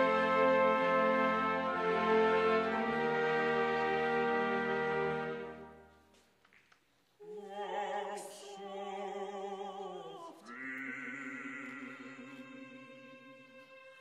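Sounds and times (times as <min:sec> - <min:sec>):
solo voice singing with vibrato: 0:07.2 - 0:14.0.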